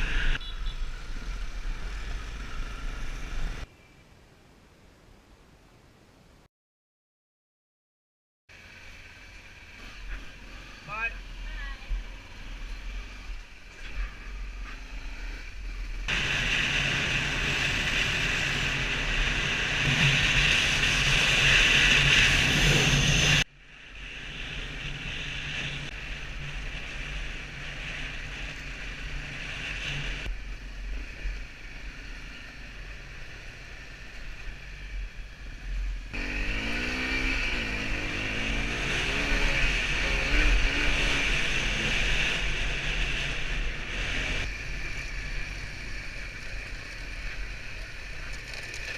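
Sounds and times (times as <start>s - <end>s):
motorcycle engine revving: 35.6s - 48.9s.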